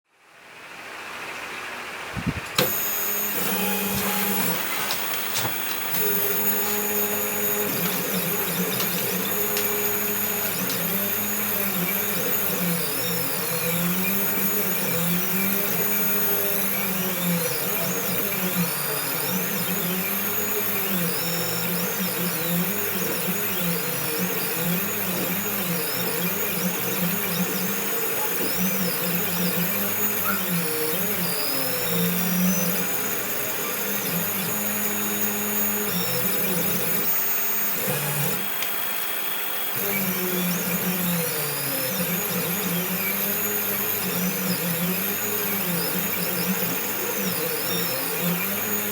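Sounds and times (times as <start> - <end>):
motor hum and whine: 0.2 - 48.9
stepper motors whirring: 2.6 - 48.9.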